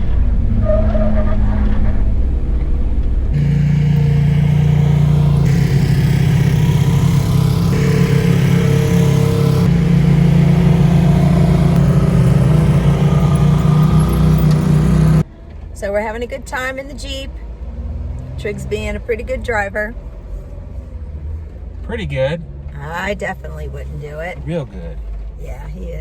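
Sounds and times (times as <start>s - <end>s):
car engine droning: 3.3s - 16.0s.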